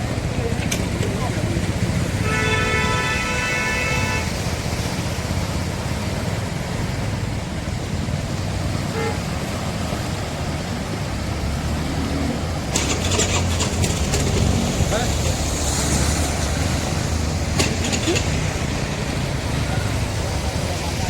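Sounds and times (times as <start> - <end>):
traffic engine rumble: 0.0 - 21.0
vehicle horn: 2.2 - 4.5, 8.9 - 9.4.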